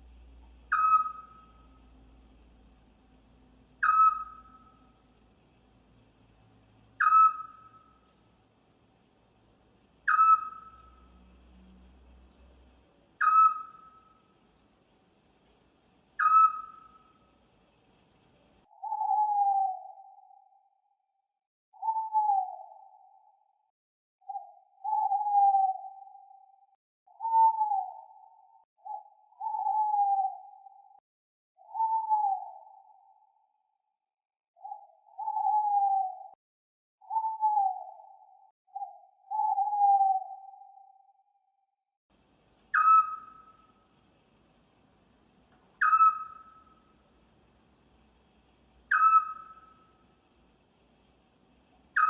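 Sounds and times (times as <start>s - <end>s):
owl hooting: 0.6s - 2.0s, 3.8s - 5.0s, 7.0s - 8.1s, 10.0s - 11.3s, 13.2s - 14.3s, 16.2s - 17.4s, 18.6s - 20.5s, 21.8s - 23.2s, 24.3s - 26.5s, 27.2s - 30.9s, 31.6s - 33.2s, 34.6s - 36.4s, 37.0s - 41.1s, 42.7s - 44.0s, 45.7s - 47.2s, 48.8s - 50.2s, 51.7s - 52.0s.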